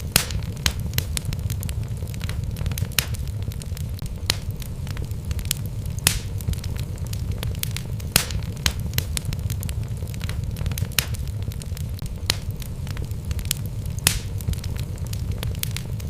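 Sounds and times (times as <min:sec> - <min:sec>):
fire crackling with log pops: 0:00.0 - 0:16.0
low rumble of flame: 0:00.0 - 0:16.0.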